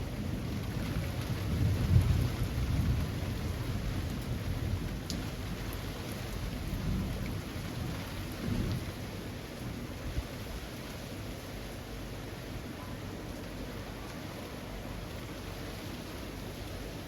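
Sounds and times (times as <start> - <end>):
rain falling among trees: 0.0 - 17.0.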